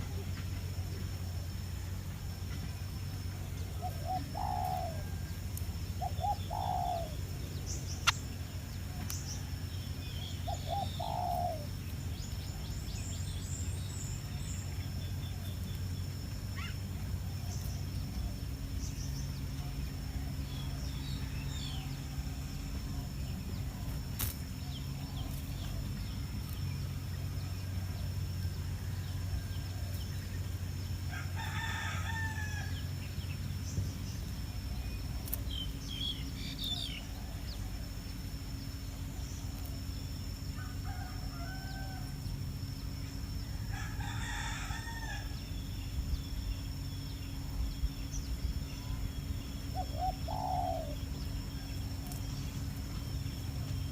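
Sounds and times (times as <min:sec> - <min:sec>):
steady low hum: 0:00.0 - 0:53.9
bird chirps: 0:02.4 - 0:30.8, 0:32.7 - 0:42.0, 0:45.2 - 0:53.9
rooster crowing: 0:31.1 - 0:32.9, 0:40.6 - 0:42.2, 0:43.4 - 0:45.4.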